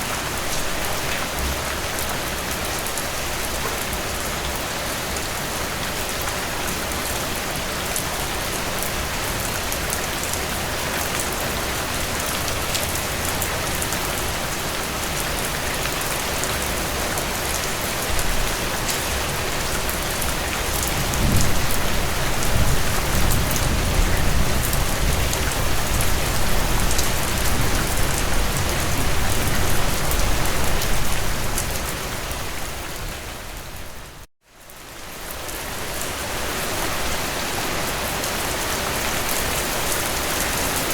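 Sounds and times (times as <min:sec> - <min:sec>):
heavy rain on a tin roof: 0:00.0 - 0:40.9
low thunder rumble: 0:20.8 - 0:30.8.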